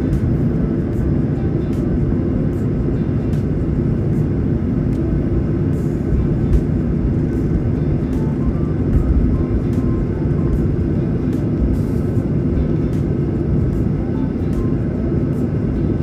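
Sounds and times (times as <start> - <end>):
jet engine cabin rumble: 0.0 - 16.0
rushing air: 0.0 - 16.0.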